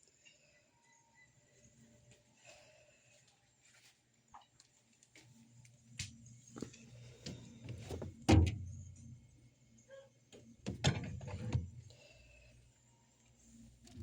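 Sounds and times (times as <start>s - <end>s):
refrigerator door knocks and thuds: 7.9s - 8.7s, 10.6s - 11.7s.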